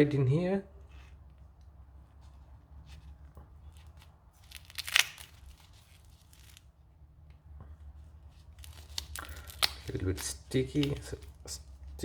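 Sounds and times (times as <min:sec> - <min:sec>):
low steady hum: 0:00.0 - 0:12.0
sticky strip peeling and tearing: 0:03.6 - 0:06.7, 0:08.4 - 0:12.0.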